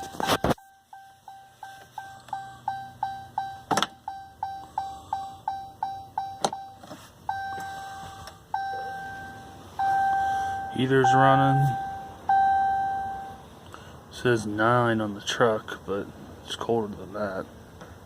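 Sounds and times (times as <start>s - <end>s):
dashboard warning chime beeping: 0.0s - 13.5s.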